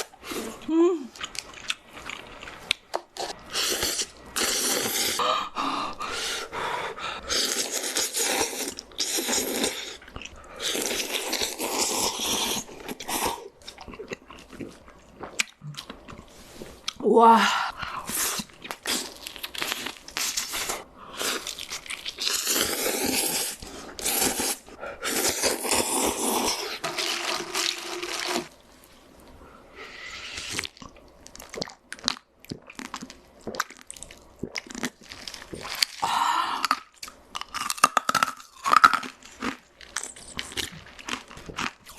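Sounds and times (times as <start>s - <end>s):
crunchy food being chewed: 1.1s - 4.1s, 18.1s - 28.6s, 30.5s - 36.0s, 36.6s - 41.9s.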